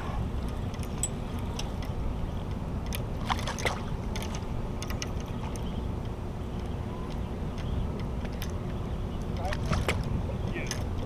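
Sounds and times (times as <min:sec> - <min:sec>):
steady low rumble: 0:00.0 - 0:11.0
light clicks and ticks: 0:00.4 - 0:11.0
water sloshing around kayak: 0:03.1 - 0:05.8, 0:07.7 - 0:10.7.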